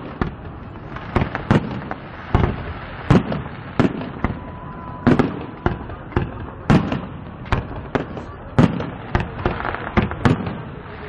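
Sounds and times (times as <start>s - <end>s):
firework crackling rumble: 0.0s - 11.0s
firework whistle: 2.4s - 6.1s.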